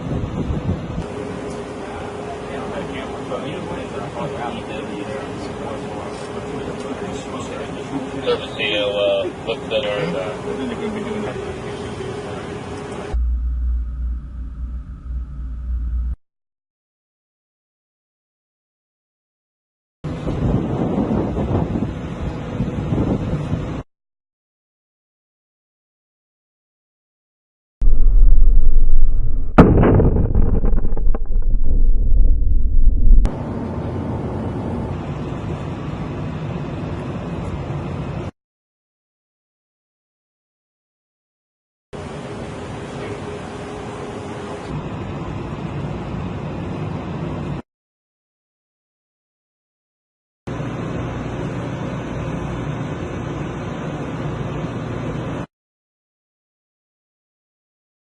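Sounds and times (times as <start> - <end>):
heavy low rumble: 13.1 - 16.2, 27.8 - 33.8
steady even noise: 13.1 - 16.2, 27.8 - 33.3
crackling: 27.8 - 33.3
sharp blast: 27.8 - 33.3.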